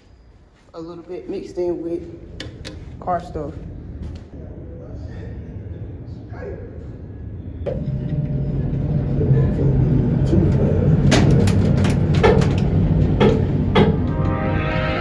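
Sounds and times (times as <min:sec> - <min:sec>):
sharp engine cracks: 0:11.0 - 0:13.4.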